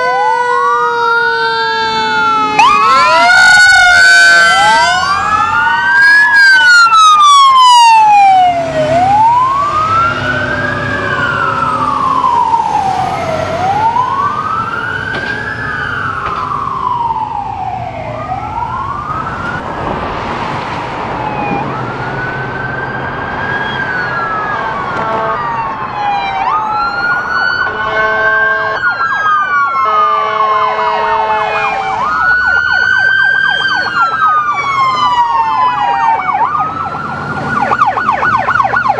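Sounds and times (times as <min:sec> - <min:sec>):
second siren: 0:00.0 - 0:20.1, 0:21.1 - 0:38.9
emergency siren wailing: 0:00.0 - 0:38.9
engine and road rumble: 0:00.0 - 0:38.9
pulsing horn blaring: 0:24.4 - 0:25.9, 0:27.6 - 0:29.0, 0:29.7 - 0:38.6.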